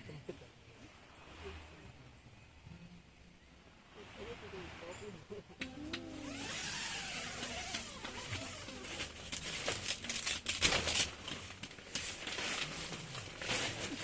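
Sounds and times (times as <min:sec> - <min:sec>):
rustling and crinkling: 0:06.0 - 0:14.0.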